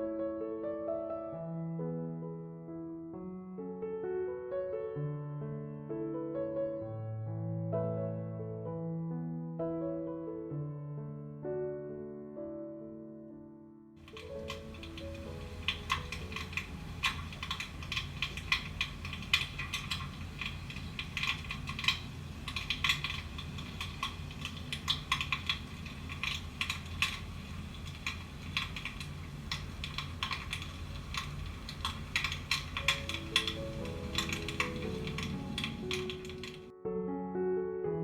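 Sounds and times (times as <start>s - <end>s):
crackling and popping fire effect: 14.0s - 36.7s
steady low hum: 14.1s - 36.4s.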